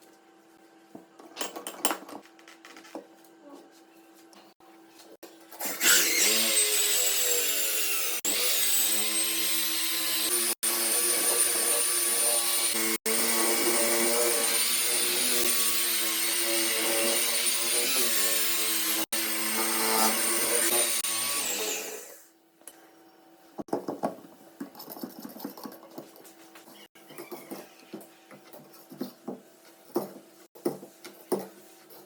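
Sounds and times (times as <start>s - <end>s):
power tool whining: 5.6s - 22.3s.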